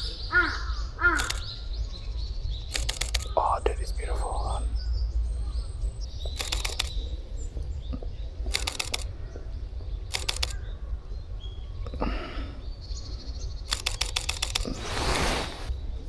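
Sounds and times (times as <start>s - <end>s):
camera shutter rapid clicks: 1.0s - 1.6s, 2.7s - 3.4s, 6.3s - 7.1s, 8.5s - 9.2s, 10.1s - 10.6s, 13.7s - 15.7s.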